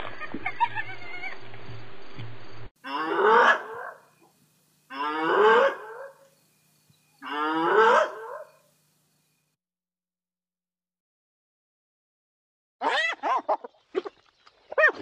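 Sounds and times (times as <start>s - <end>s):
hyena calling: 7.2s - 8.7s.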